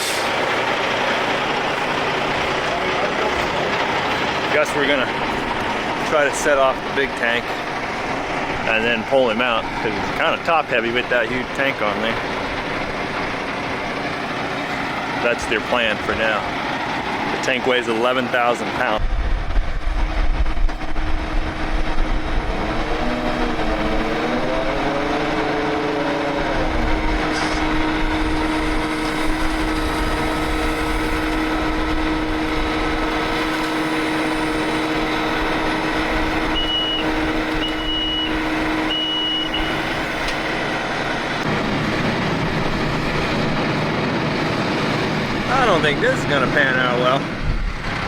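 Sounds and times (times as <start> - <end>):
heavy equipment engine running: 0.0 - 48.0
backup alarm beeps: 36.4 - 39.8.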